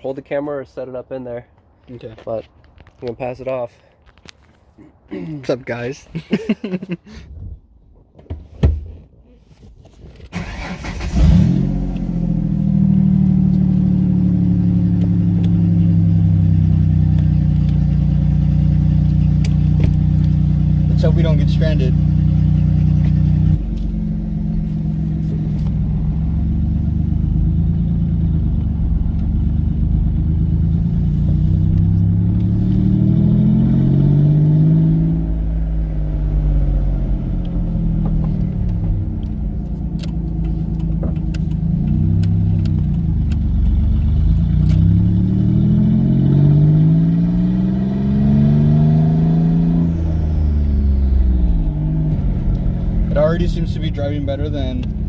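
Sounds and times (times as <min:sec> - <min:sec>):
car engine accelerating: 0:10.3 - 0:55.0.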